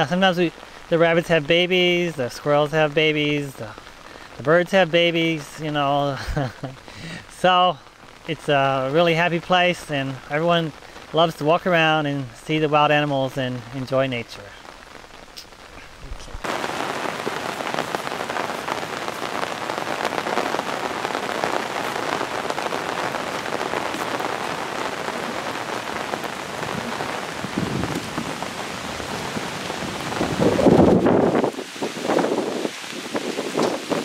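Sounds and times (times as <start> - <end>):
rain falling: 0.0 - 34.0
burst of noise: 15.3 - 29.1.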